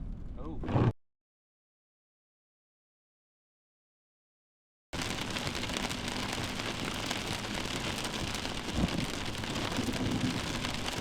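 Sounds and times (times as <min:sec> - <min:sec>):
heavy rain: 0:05.0 - 0:11.0.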